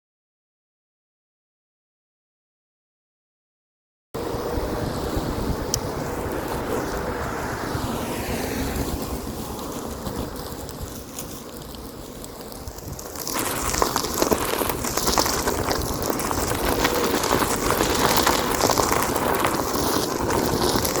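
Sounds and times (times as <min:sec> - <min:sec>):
wind on microphone: 0:04.2 - 0:21.0
tyre rolling over gravel: 0:08.8 - 0:21.0.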